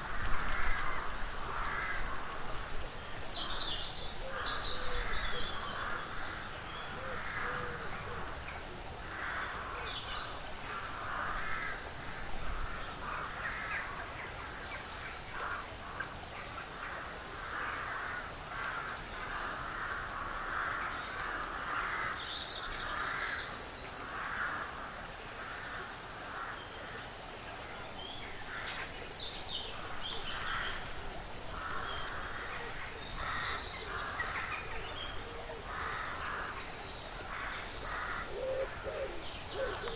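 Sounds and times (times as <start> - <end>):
rough caw-like bird calls: 29.8 - 39.9.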